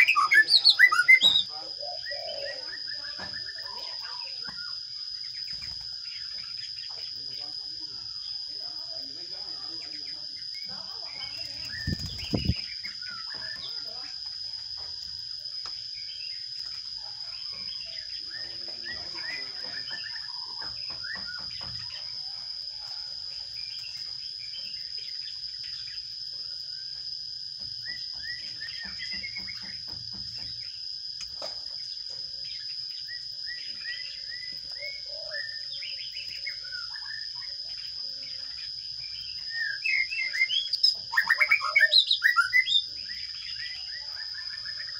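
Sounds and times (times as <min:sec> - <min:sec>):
sparrows chirping: 0:00.0 - 0:44.9
steady high-pitched hum: 0:10.4 - 0:26.8.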